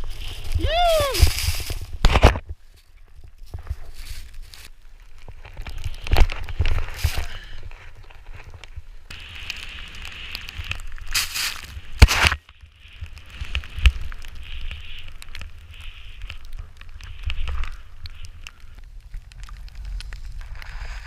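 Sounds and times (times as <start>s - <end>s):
snowboard swooshing through powder: 0.0s - 2.2s, 3.5s - 4.7s, 9.2s - 16.4s, 19.8s - 21.0s
wind rumbling on microphone: 0.0s - 21.0s.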